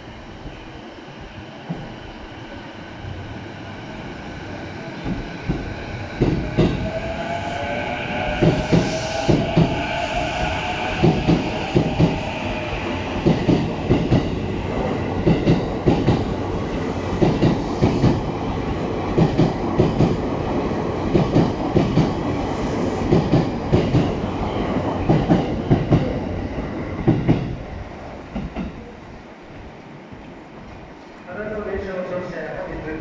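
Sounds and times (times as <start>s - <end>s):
train running rumble: 1.3s - 28.9s.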